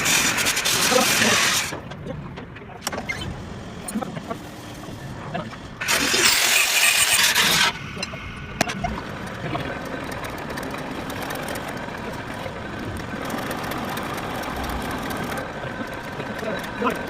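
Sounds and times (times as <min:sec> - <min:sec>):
metal lathe running: 0:03.4 - 0:17.0.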